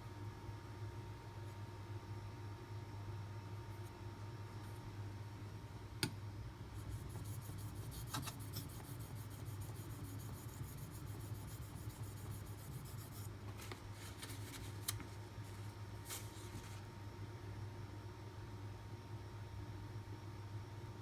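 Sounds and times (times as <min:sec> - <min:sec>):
blade scraping on whetstone: 0:07.1 - 0:13.3.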